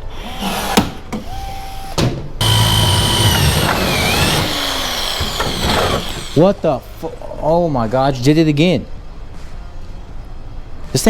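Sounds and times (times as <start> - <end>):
power drill drilling metal: 0.3 - 6.4.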